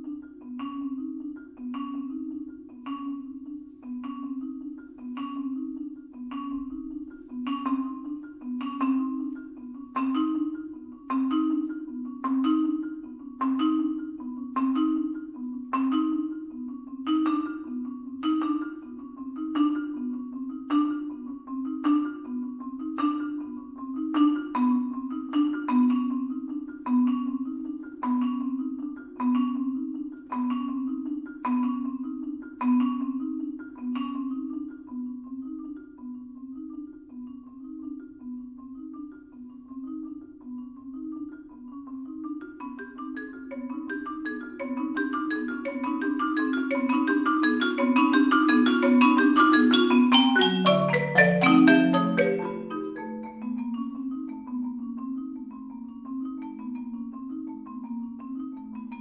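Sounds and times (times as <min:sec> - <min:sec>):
marimbas and vibraphone playing: 0:00.0 - 0:59.0.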